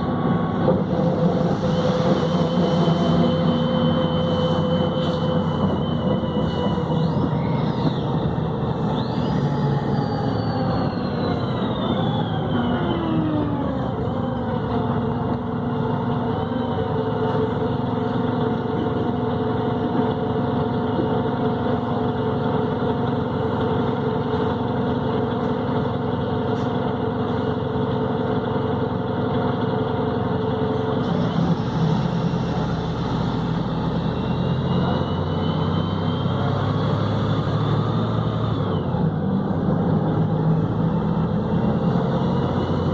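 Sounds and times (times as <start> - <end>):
gearbox whine: 0.0 - 19.2
bus diesel engine: 0.0 - 42.9.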